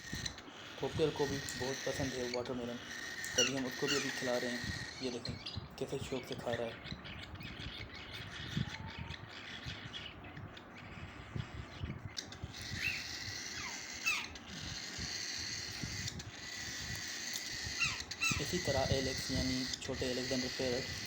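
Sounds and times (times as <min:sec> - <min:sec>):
bird chirps sliding down: 0:00.0 - 0:21.0
birds eating rustling: 0:00.0 - 0:21.0.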